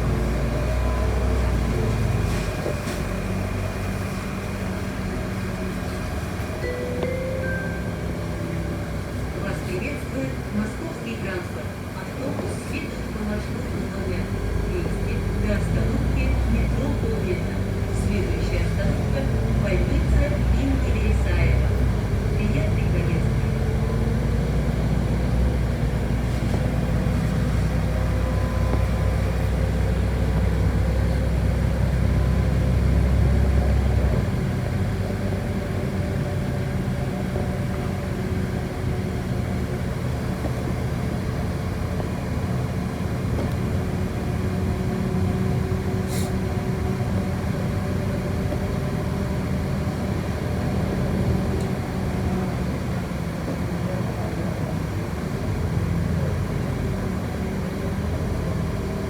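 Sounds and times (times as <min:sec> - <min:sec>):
bus running and road noise: 0:00.0 - 0:59.0
heavy low rumble: 0:06.7 - 0:35.0.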